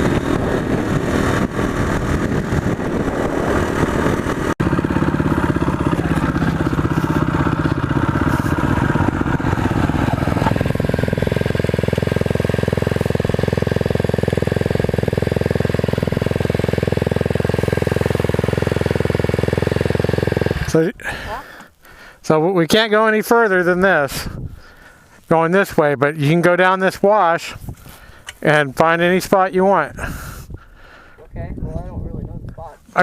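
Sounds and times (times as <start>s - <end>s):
motorcycle engine running: 0.0s - 21.2s.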